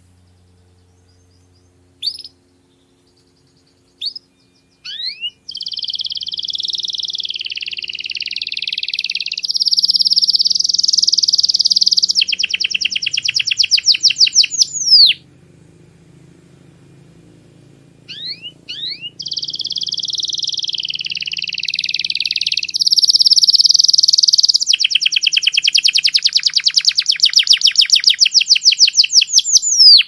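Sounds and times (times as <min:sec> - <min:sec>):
canary singing: 0:00.0 - 0:30.0.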